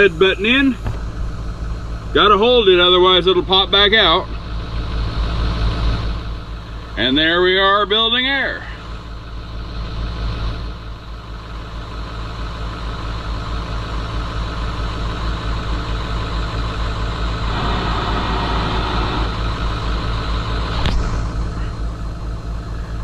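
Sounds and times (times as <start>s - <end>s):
diesel truck engine idling: 0.0s - 23.0s
air compressor building pressure: 16.0s - 23.0s
rush of noise: 17.4s - 19.5s.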